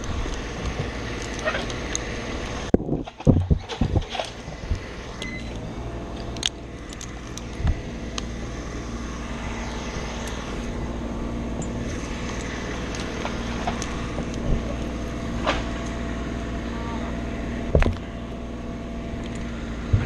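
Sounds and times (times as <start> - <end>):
sharp clicks and knocks: 0.0 - 8.3, 11.6 - 16.0, 17.7 - 18.1
engine-like hum: 0.0 - 20.0.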